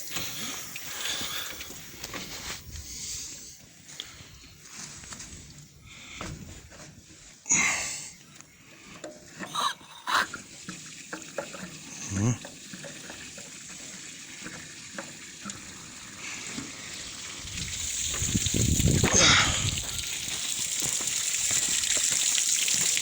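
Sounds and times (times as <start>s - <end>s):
water pouring from drain tap: 9.0s - 23.0s.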